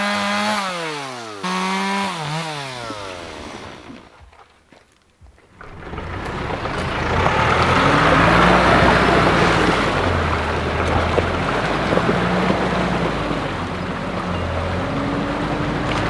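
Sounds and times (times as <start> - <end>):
tyre noise on dirt: 2.8 - 16.0
car engine running: 5.6 - 16.0.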